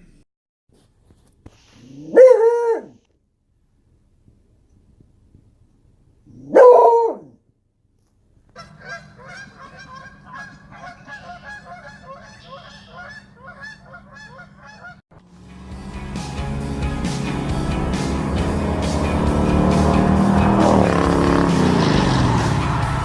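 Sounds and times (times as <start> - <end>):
animal calls: 8.6 - 15.0
low hum: 15.3 - 23.0
music: 15.3 - 23.0.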